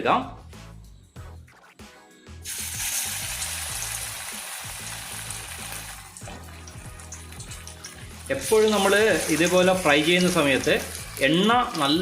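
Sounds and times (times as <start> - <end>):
chicken sizzling in hot oil: 2.4 - 12.0.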